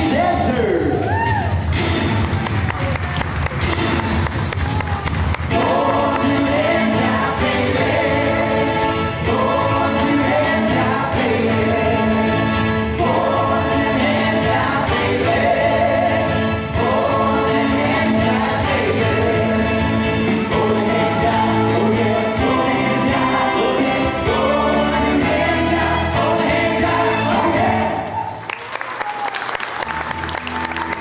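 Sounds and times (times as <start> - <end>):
orchestral music: 0.0 - 28.1
choir singing held phrases: 5.4 - 28.2.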